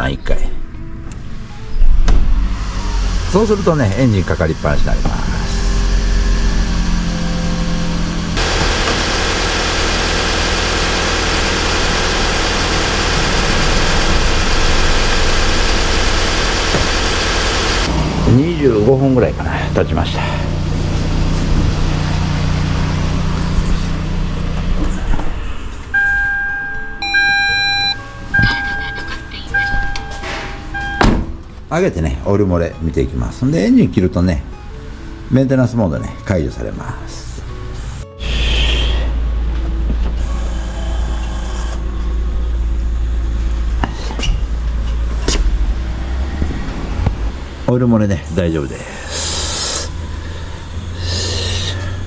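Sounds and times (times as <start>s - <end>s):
vehicle lift motor hum: 2.1s - 28.6s, 39.1s - 52.0s
car engine idling: 2.8s - 25.7s, 39.1s - 52.0s
high beeping tones: 26.0s - 31.2s.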